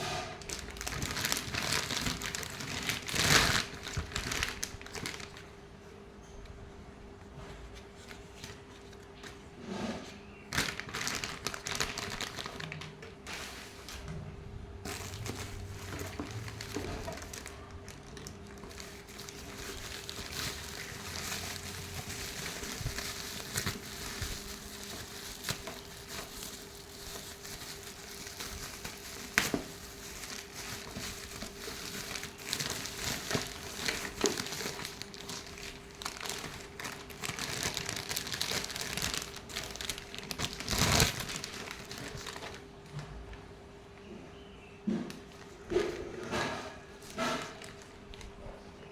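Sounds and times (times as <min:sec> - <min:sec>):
plastic packaging crinkling: 0:00.4 - 0:05.6, 0:10.3 - 0:14.2, 0:14.8 - 0:42.9, 0:47.0 - 0:48.5.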